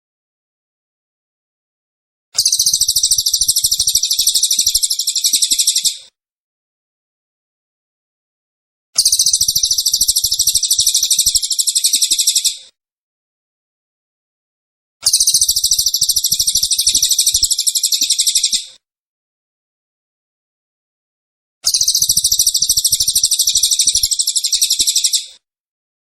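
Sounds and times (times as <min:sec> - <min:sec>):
songbird fast trilling song: 0:02.4 - 0:06.0, 0:09.0 - 0:12.6, 0:15.0 - 0:18.7, 0:21.7 - 0:25.4.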